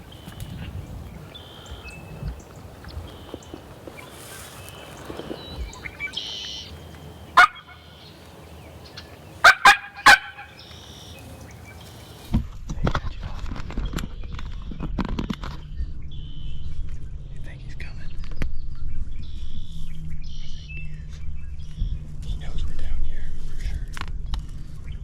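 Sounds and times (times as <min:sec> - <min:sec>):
faint songbirds: 0:00.0 - 0:12.3
rustling of movement: 0:00.0 - 0:12.3
turkey calls: 0:00.0 - 0:12.3.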